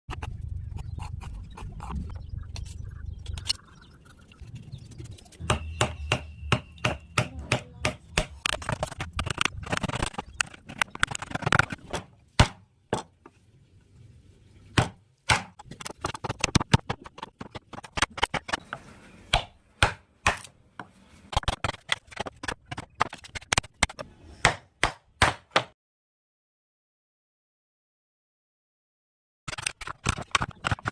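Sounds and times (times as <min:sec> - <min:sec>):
mallet striking chisel on wood: 0:05.4 - 0:08.4.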